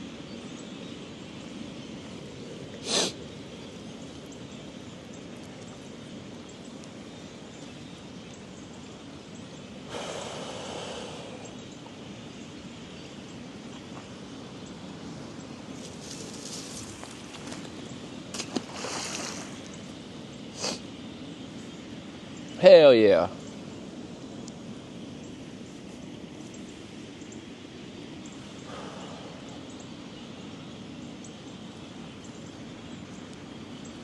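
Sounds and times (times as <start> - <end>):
breath-like noise close to mic: 2.8 - 3.2, 9.9 - 11.6, 20.5 - 20.9, 28.6 - 29.8.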